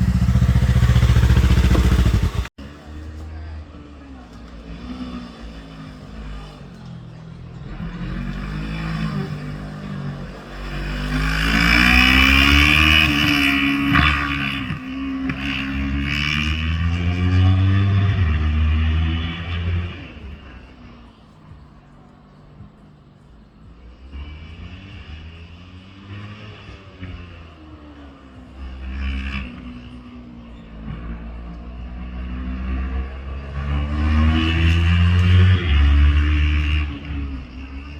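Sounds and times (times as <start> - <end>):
motorcycle engine running: 0.0 - 3.3
motorcycle engine revving: 0.0 - 37.9.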